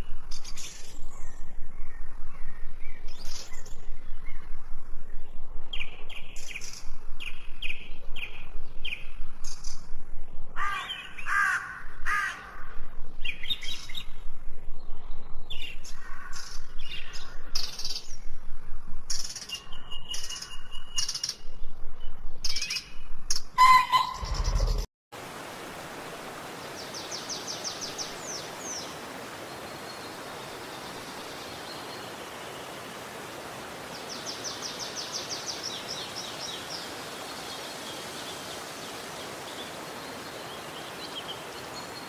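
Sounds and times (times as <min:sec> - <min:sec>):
birds calling and chirping: 0:19.1 - 0:24.9.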